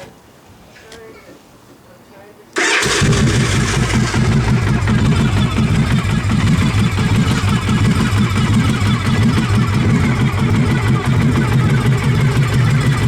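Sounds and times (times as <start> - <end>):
motorcycle engine idling: 2.6 - 13.0.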